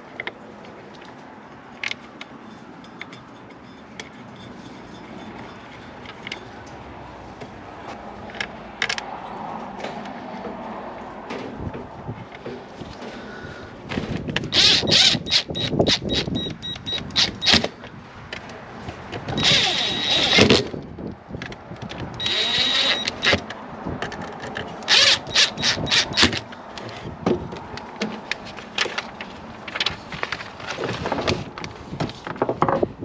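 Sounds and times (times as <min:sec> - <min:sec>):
parts clicking and knocking: 0:00.0 - 0:06.8, 0:07.4 - 0:10.6, 0:11.2 - 0:13.3, 0:13.9 - 0:33.0
scraping bursts: 0:19.4 - 0:20.8.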